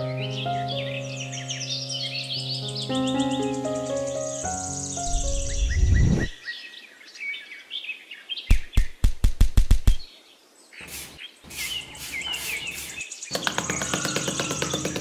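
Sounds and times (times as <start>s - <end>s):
birdsong chirping: 0.0s - 9.1s, 9.8s - 15.0s
sharp knocks: 8.5s - 10.0s, 13.3s - 15.0s
metal trowel scraping sand: 10.8s - 13.1s.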